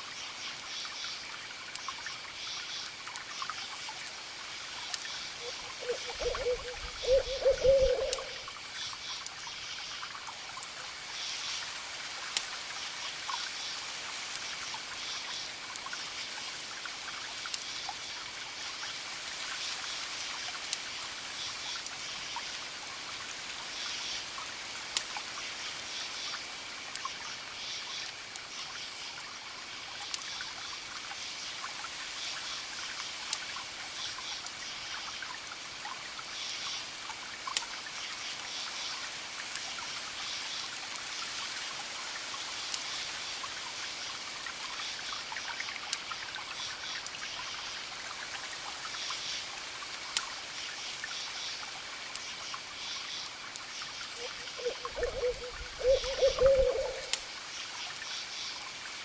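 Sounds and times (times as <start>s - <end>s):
campfire crackling and popping: 4.8s - 5.1s, 15.4s - 18.8s, 30.0s - 30.3s, 56.8s - 57.4s
crickets chirping: 4.8s - 10.0s, 52.2s - 58.6s.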